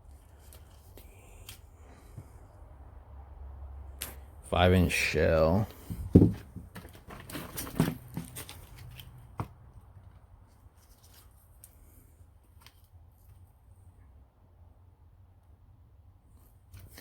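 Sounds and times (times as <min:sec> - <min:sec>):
loud knock: 0:06.0 - 0:06.7.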